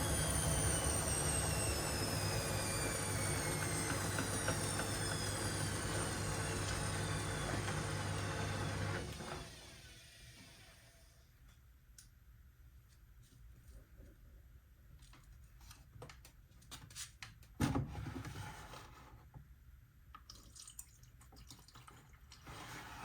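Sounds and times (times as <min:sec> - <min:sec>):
washing machine motor whine: 0:00.0 - 0:11.0.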